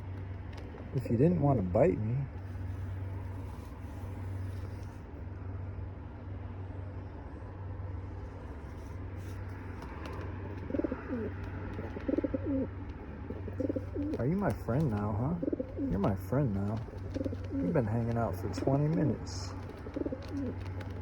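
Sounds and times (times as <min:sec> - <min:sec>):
steady low hum: 0:00.0 - 0:21.0
faint clicks: 0:09.8 - 0:21.0
bird cooing: 0:10.0 - 0:21.0.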